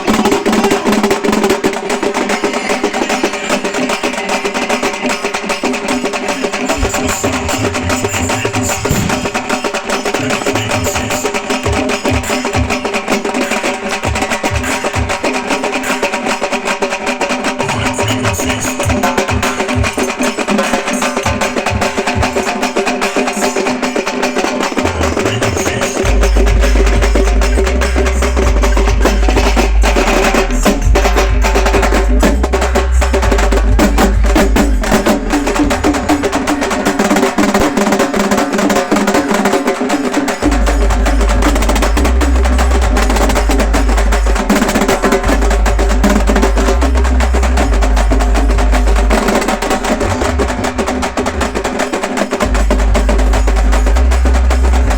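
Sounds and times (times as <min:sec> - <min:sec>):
deep bass: 0:06.8 - 0:07.9, 0:26.0 - 0:36.1, 0:40.5 - 0:50.7, 0:52.4 - 0:54.9
steady held tones: 0:40.3 - 0:54.9.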